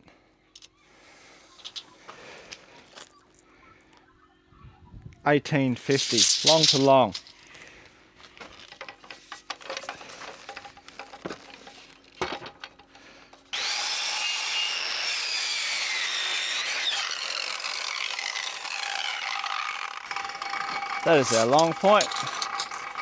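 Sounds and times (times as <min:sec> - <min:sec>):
handling timber and tools: 0:00.6 - 0:03.2, 0:05.8 - 0:14.0, 0:17.7 - 0:23.0
power saw cutting timber: 0:12.8 - 0:23.0.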